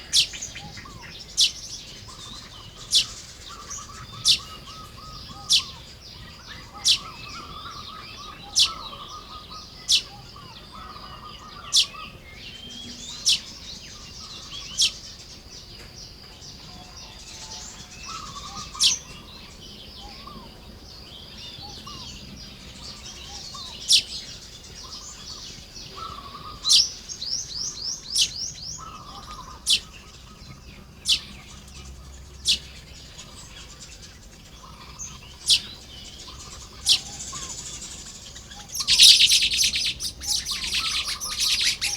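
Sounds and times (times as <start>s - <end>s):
bird chattering run: 34.9s - 41.9s.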